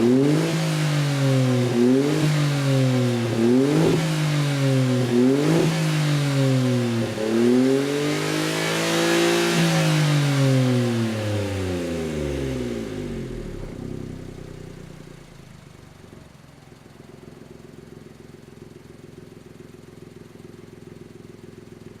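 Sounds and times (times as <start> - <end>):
car engine revving: 0.0 - 17.3.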